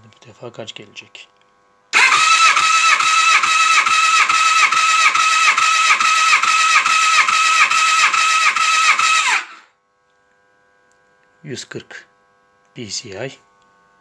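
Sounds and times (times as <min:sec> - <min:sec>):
electric starter whining: 0:02.0 - 0:09.7.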